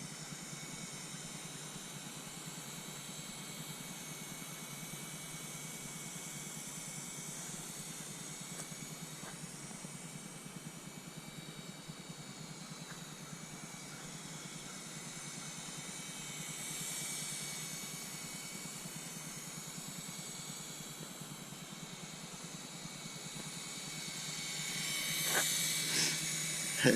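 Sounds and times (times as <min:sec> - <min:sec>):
toy helicopter motors whining: 0:23.6 - 0:26.9.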